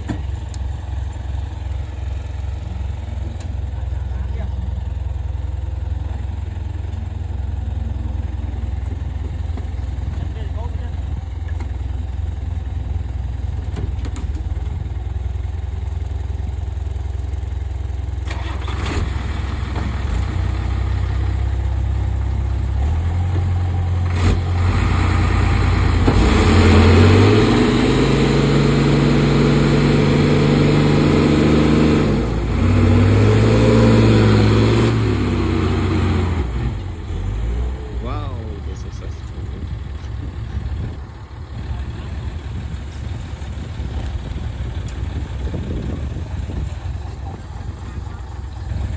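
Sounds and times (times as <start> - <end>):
heavy diesel engine revving: 18.2 - 48.9.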